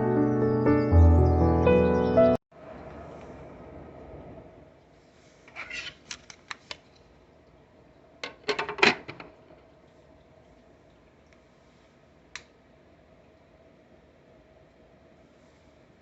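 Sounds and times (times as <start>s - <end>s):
faint steady hum: 6.2s - 16.0s.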